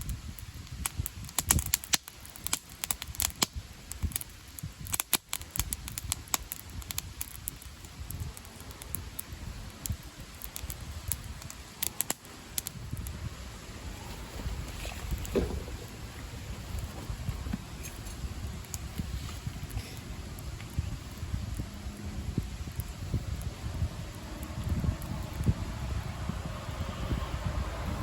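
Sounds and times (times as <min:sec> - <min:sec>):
campfire crackling and popping: 0:00.0 - 0:28.0
low rumble: 0:08.0 - 0:28.0.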